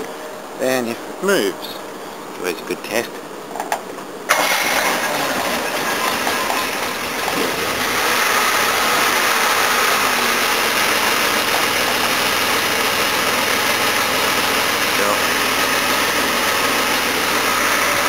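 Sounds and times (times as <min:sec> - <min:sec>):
car engine idling: 0:04.3 - 0:18.0.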